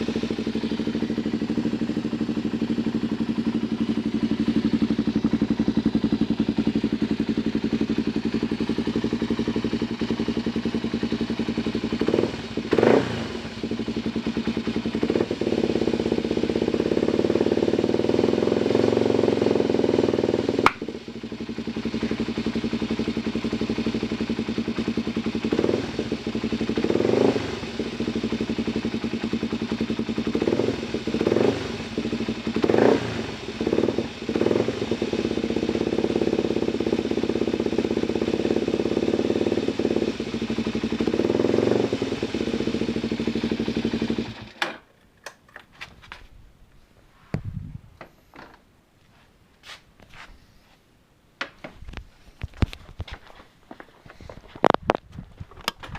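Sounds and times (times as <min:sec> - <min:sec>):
motorcycle engine idling and revving: 0:00.0 - 0:44.6.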